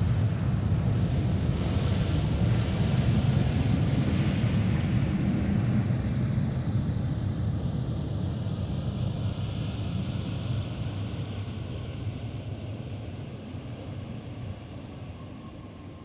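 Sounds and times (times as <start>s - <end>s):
jet airliner rumble and hiss: 0.0s - 16.0s.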